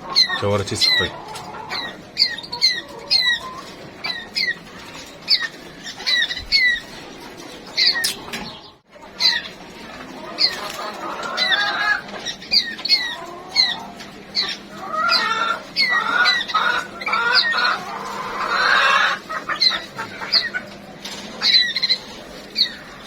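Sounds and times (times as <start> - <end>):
songbirds chirping: 0.0 - 23.0
bird warbling song: 0.1 - 9.6, 11.4 - 17.8, 21.4 - 23.0.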